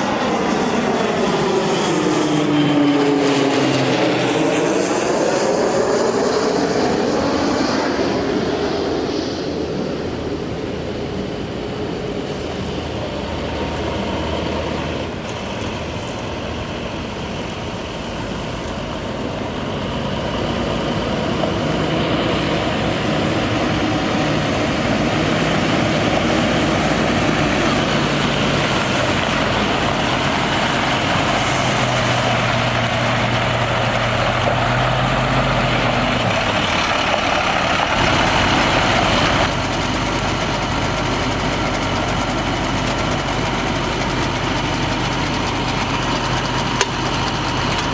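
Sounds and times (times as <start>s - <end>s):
diesel truck engine running: 0.0s - 9.0s, 9.9s - 47.9s
broad rushing hiss: 5.9s - 13.3s, 21.6s - 39.5s.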